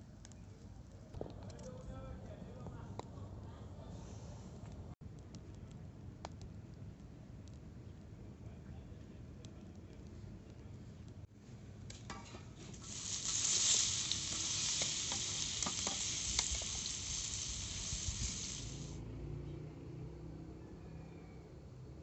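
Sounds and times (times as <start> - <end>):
food sizzling in a frying pan: 12.1 - 19.0.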